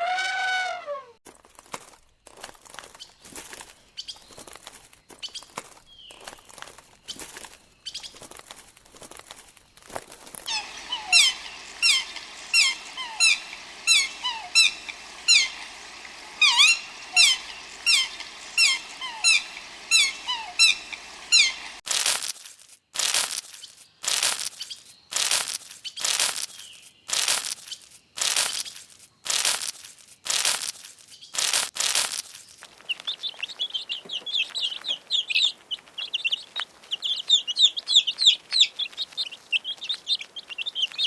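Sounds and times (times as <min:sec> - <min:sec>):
bird chirping: 0:05.2 - 0:08.3, 0:10.5 - 0:21.8, 0:32.5 - 0:41.0.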